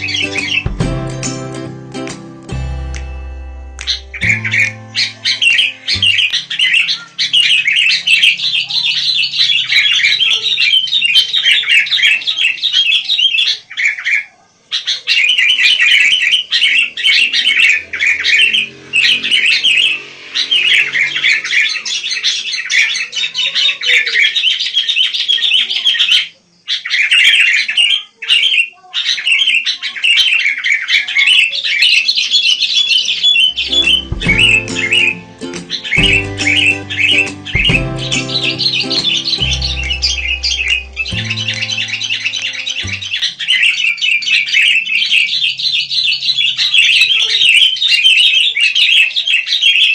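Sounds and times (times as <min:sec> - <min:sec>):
bulbul chattering: 0:33.0 - 0:43.9.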